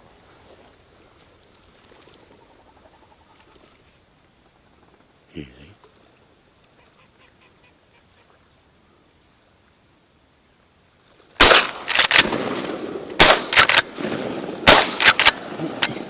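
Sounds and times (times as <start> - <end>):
shotgun shots: 11.4 - 16.0.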